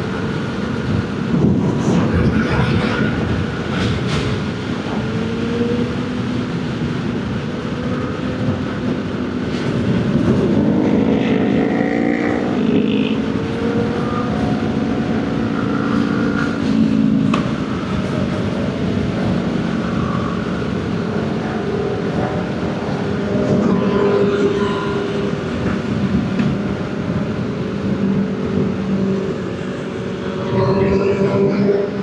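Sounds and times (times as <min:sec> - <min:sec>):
wind and road noise: 0:00.0 - 0:32.0.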